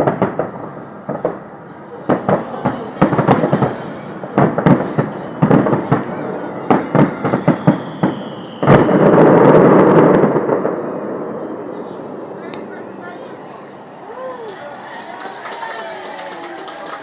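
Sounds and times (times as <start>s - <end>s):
firework whistle: 0.0s - 12.4s
fireworks bangs: 0.0s - 17.0s.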